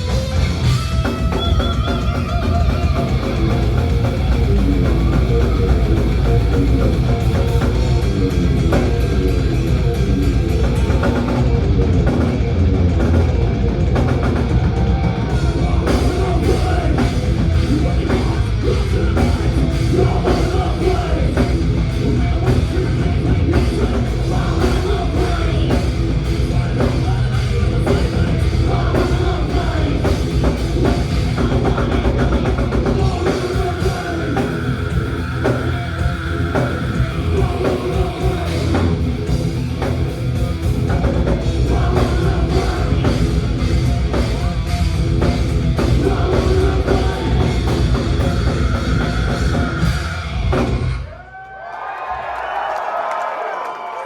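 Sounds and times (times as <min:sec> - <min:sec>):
heavy drum kit: 0:00.0 - 0:51.2
thrash metal band playing live: 0:00.0 - 0:51.2.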